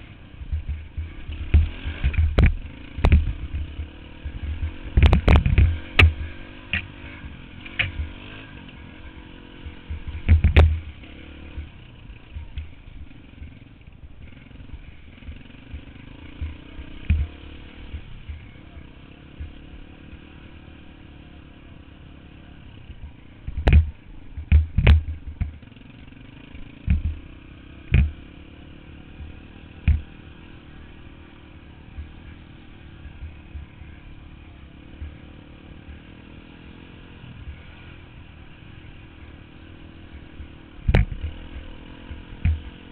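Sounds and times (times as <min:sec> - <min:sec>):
dirt bike engine running: 0:00.0 - 0:42.9
sharp knocks: 0:10.2 - 0:10.8, 0:40.9 - 0:41.3.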